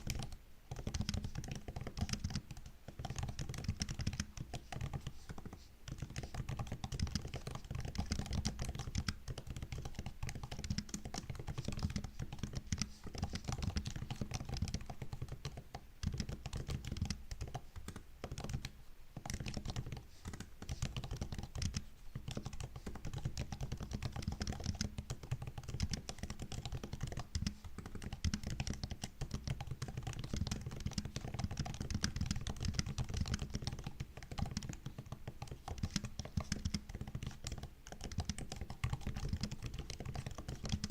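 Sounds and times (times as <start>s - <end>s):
laptop keyboard typing: 0.0s - 40.9s.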